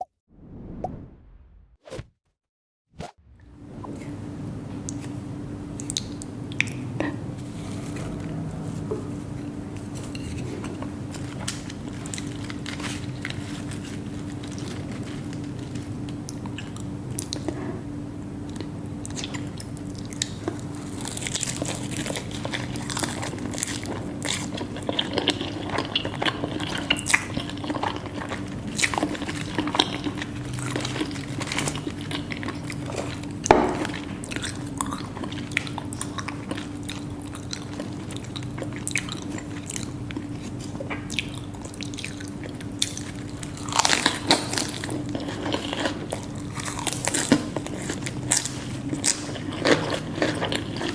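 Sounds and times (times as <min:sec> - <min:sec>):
faint steady hum: 0:03.2 - 0:50.9
crunchy bites and chewing: 0:19.1 - 0:50.9.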